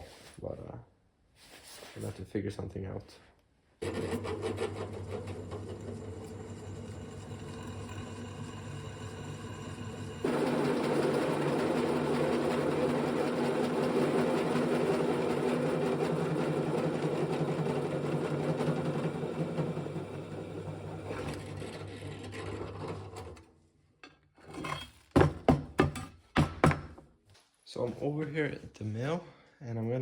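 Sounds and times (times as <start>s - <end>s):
electric machine whirring: 3.8s - 23.4s.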